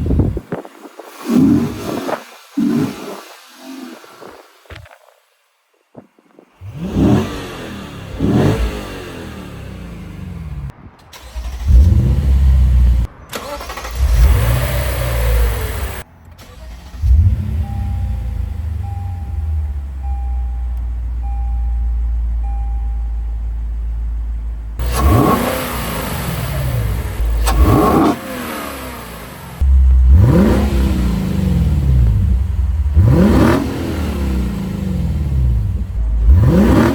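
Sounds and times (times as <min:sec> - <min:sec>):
car engine revving: 0:06.6 - 0:21.3, 0:23.6 - 0:36.9.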